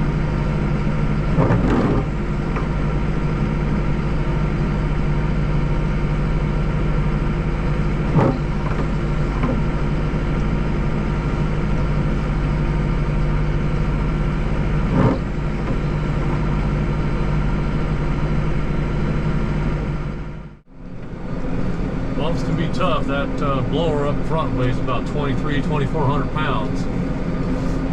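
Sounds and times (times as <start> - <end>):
tractor engine droning: 0.0 - 27.9
tractor jolting knocks: 1.3 - 2.8.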